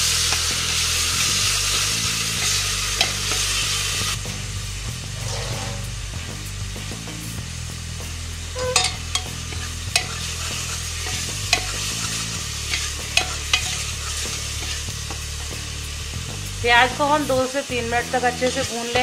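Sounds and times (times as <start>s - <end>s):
food sizzling in hot oil: 0.0s - 19.0s
steel ladle scraping metal pot: 5.0s - 6.2s, 8.6s - 14.9s.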